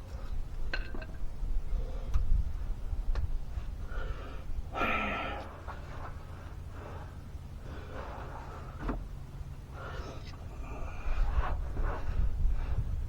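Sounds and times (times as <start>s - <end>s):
man exhaling heavily: 4.7s - 5.5s.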